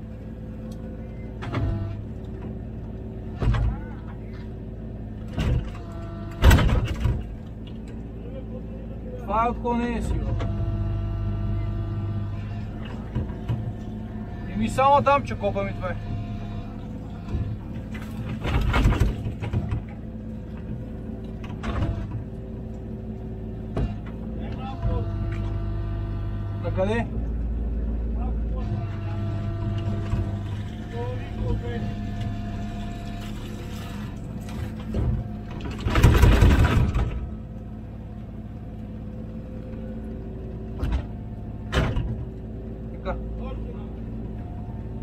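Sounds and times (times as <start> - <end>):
excavator diesel engine running: 0.0 - 45.0
excavator bucket clattering: 12.6 - 15.4, 16.0 - 22.5, 28.8 - 37.8.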